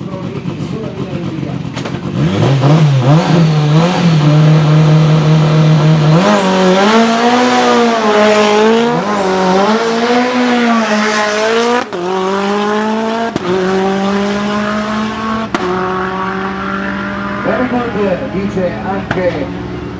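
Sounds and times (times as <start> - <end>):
race car engine running hard: 0.0 - 19.9
turbo whistle: 6.2 - 11.9.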